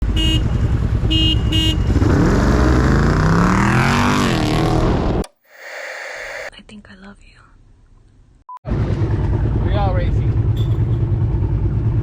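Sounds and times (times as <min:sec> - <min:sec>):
vehicle engine accelerating hard: 0:01.8 - 0:05.2, 0:08.7 - 0:12.0.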